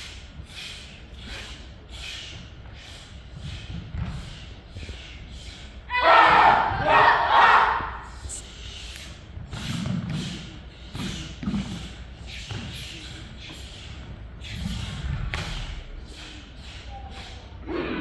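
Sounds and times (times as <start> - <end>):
faint murmuring: 0.0 - 18.0
soft thumps and shuffling: 2.6 - 5.1.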